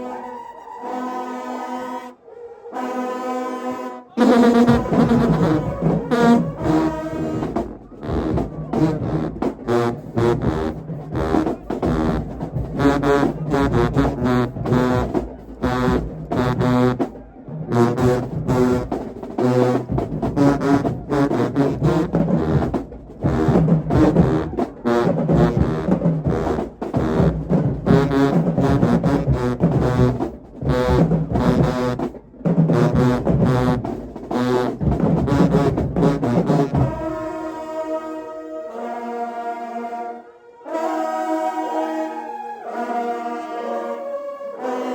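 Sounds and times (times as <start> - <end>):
marching band brass blasts: 0.0 - 44.9
drums: 4.2 - 37.6.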